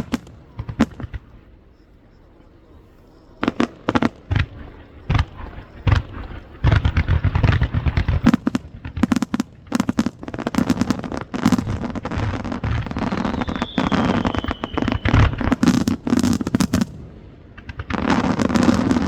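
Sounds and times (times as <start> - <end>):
fireworks shells bursting: 10.6 - 17.0.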